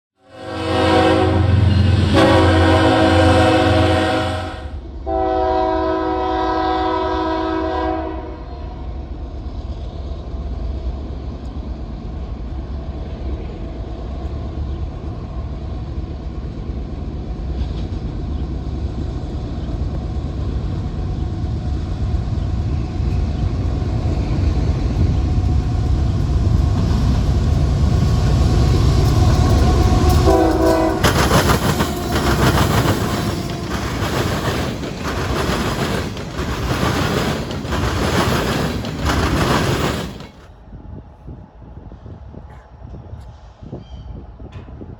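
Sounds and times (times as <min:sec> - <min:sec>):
locomotive air horn blasts: 0:00.2 - 0:08.4, 0:29.4 - 0:34.0
train rumbling past: 0:00.2 - 0:44.9.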